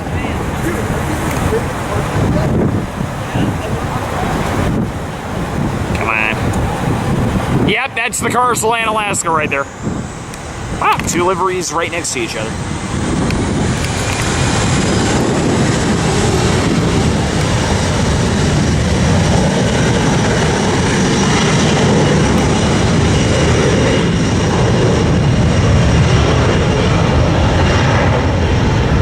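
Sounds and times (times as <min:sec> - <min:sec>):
jet engines rumbling with whine: 0:00.0 - 0:29.0.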